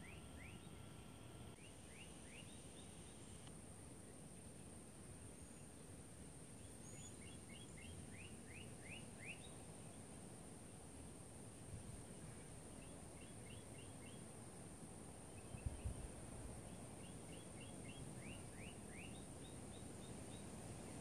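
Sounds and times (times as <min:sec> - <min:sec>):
small bird chirping: 0:00.0 - 0:03.4, 0:06.6 - 0:10.0, 0:12.1 - 0:14.3, 0:15.3 - 0:21.0
low wind rumble: 0:14.3 - 0:21.0.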